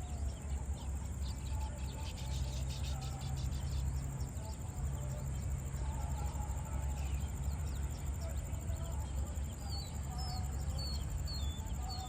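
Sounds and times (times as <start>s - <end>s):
high insect trill: 0.0s - 12.0s
small birds chirping: 0.0s - 12.0s.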